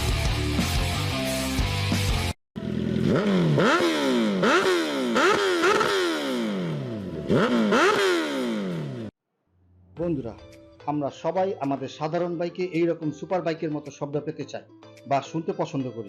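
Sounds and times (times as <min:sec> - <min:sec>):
music: 0:00.0 - 0:02.4, 0:09.8 - 0:16.0
motorcycle engine revving: 0:02.6 - 0:09.2.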